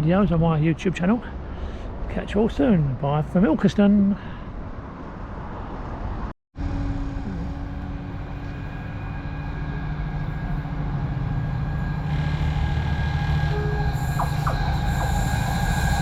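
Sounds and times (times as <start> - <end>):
diesel train engine drone: 6.6 - 16.0.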